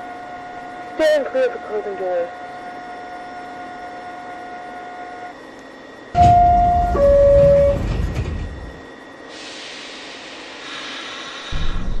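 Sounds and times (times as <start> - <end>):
subway train rumbling: 0.0 - 12.0
two-note door-closing chime: 6.2 - 8.0.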